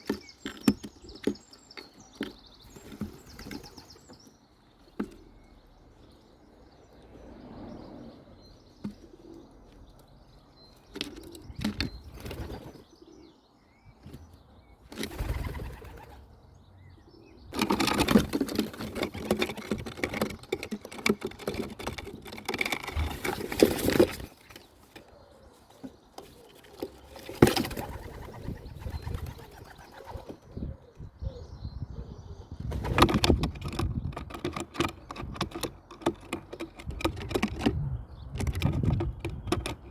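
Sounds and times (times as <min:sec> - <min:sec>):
pigeons cooing: 0:07.2 - 0:10.2, 0:10.8 - 0:13.6, 0:14.9 - 0:34.1
wings flapping: 0:15.0 - 0:16.2, 0:27.2 - 0:30.4.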